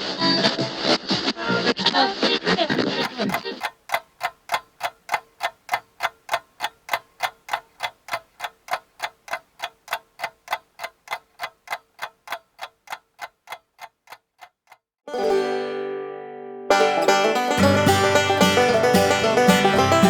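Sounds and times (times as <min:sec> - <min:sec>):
clock ticking: 0:02.8 - 0:14.9, 0:17.0 - 0:20.0.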